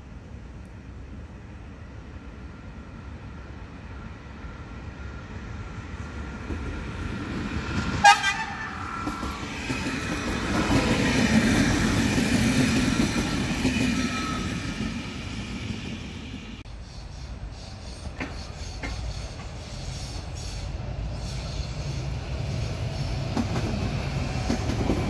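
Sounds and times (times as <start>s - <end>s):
train wheels rumbling on rails: 0.0s - 25.0s
train horn toot: 8.0s - 9.0s.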